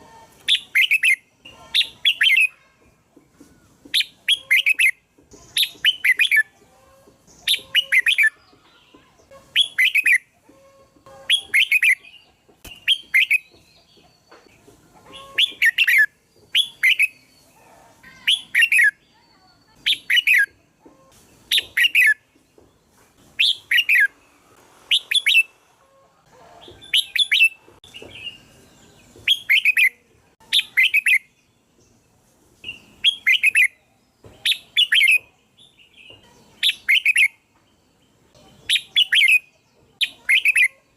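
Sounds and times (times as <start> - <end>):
bird singing warbling phrases: 0.4 - 2.7, 3.9 - 14.3, 15.0 - 20.7, 21.5 - 22.3, 23.4 - 24.2, 26.8 - 31.6, 32.6 - 37.5, 38.3 - 40.9.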